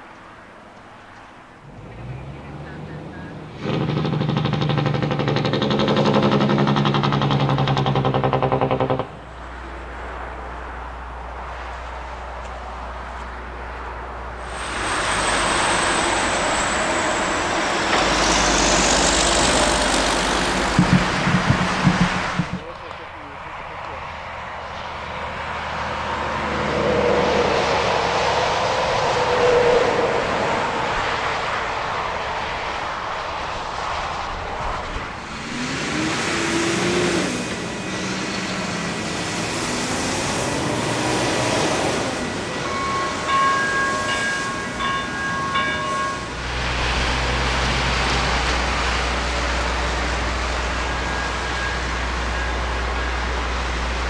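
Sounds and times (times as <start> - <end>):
train running past: 7.9 - 54.0
pulsing crossing signal tones: 41.8 - 46.6, 49.5 - 54.0.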